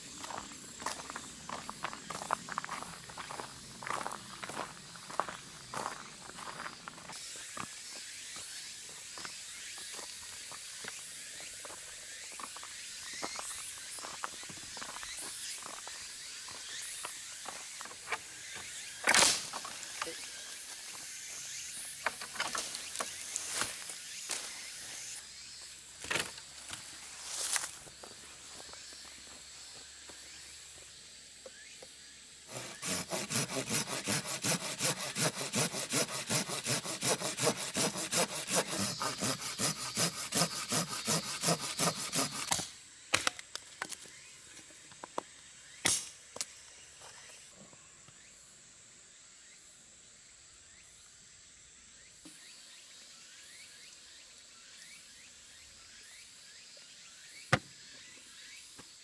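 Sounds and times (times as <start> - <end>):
hand saw cutting wood: 32.5 - 42.7.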